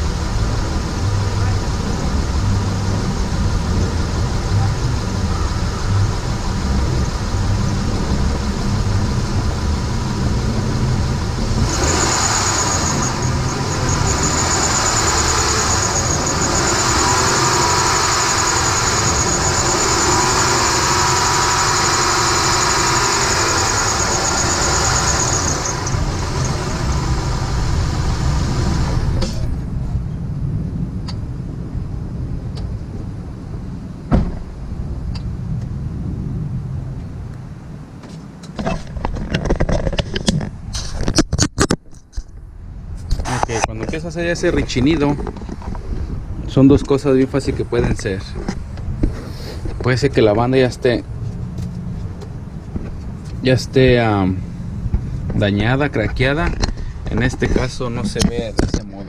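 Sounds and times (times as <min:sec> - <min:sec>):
car engine running: 0:00.0 - 0:30.1, 0:43.2 - 0:59.0
drive belt squealing: 0:06.7 - 0:29.5.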